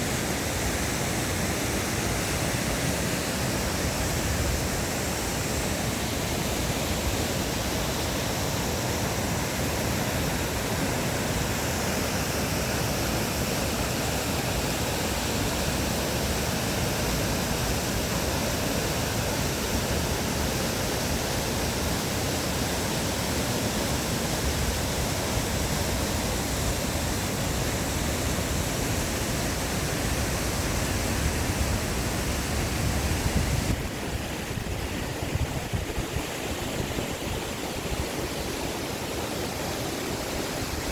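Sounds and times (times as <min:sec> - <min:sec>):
stream rushing: 0:00.0 - 0:40.9.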